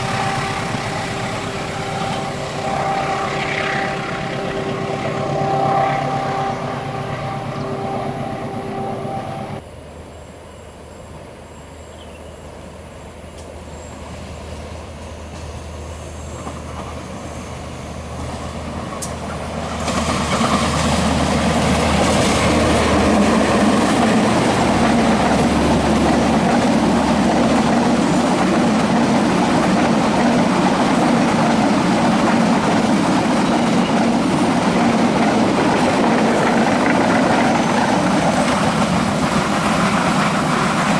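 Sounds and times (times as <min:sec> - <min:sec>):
train wheels clattering: 0:18.3 - 0:40.9.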